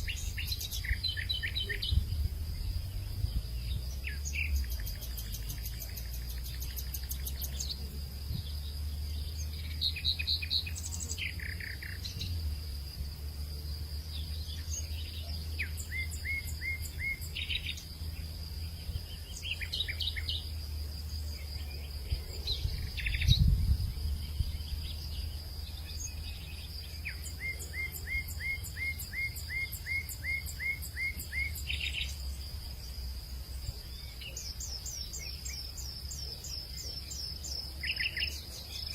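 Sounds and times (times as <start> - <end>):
low wind rumble: 0.0 - 5.5, 17.4 - 27.1
birds chirping and calling: 0.0 - 12.5, 14.0 - 20.6, 21.3 - 32.5, 33.6 - 38.9.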